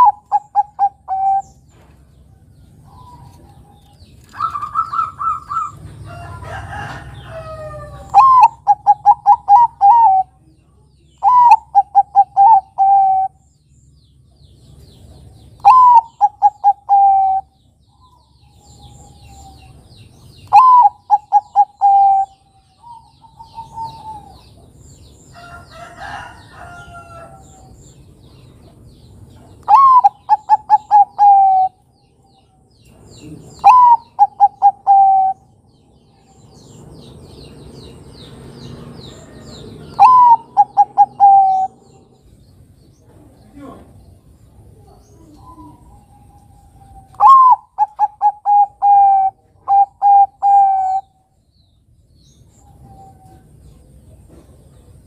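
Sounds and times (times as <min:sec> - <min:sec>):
dove cooing: 0:00.0 - 0:01.6, 0:02.8 - 0:10.4, 0:11.2 - 0:13.4, 0:15.6 - 0:19.8, 0:20.4 - 0:24.8, 0:29.6 - 0:31.8, 0:33.2 - 0:35.6, 0:39.2 - 0:42.2, 0:44.7 - 0:51.2
small birds chirping: 0:00.0 - 0:55.0.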